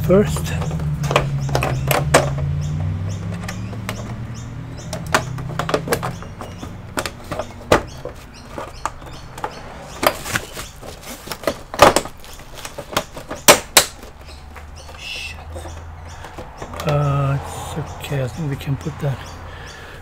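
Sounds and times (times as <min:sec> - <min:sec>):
plastic clips snapping: 0:11.2 - 0:14.7.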